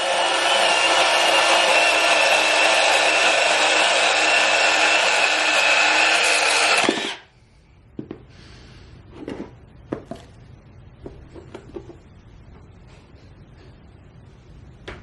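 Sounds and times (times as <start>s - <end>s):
band saw whining: 0.0s - 7.3s.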